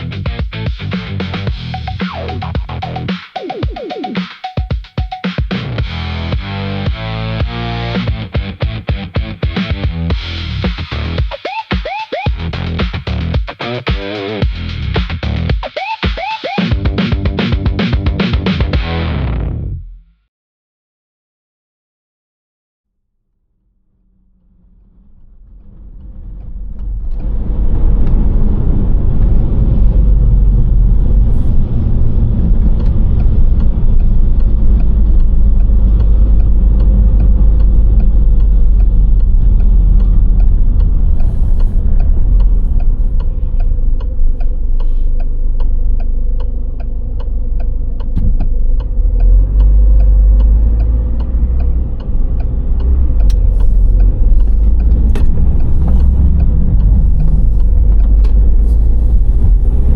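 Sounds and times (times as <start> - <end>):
car engine and tyre rumble: 5.6 - 11.2, 23.9 - 59.9
light regular ticking: 29.2 - 59.9.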